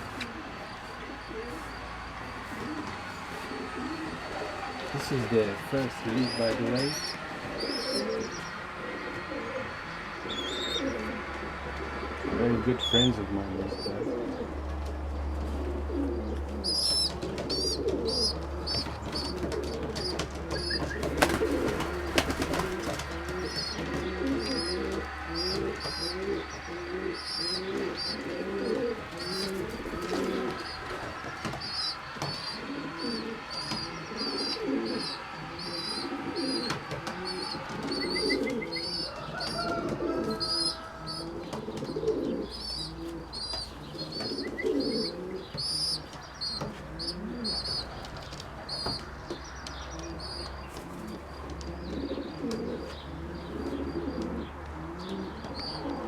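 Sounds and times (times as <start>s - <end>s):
low steady hum: 0.0s - 53.6s
pigeons cooing: 0.0s - 56.0s.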